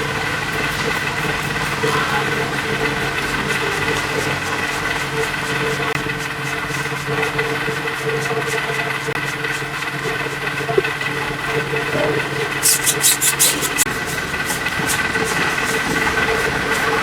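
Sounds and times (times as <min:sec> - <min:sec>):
engine idling: 0:00.0 - 0:17.0
short hissing bursts: 0:12.6 - 0:13.9.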